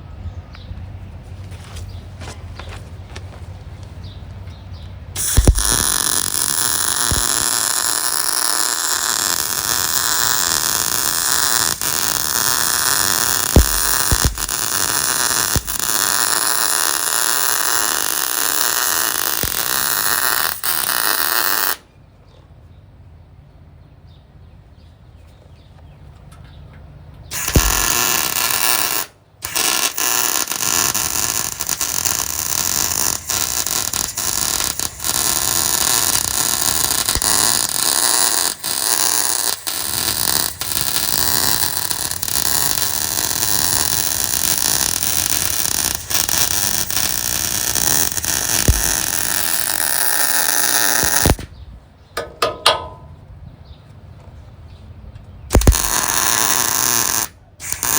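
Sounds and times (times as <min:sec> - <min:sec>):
welder crackling buzz: 0:05.2 - 0:21.8, 0:27.3 - 0:51.5, 0:55.5 - 0:57.9.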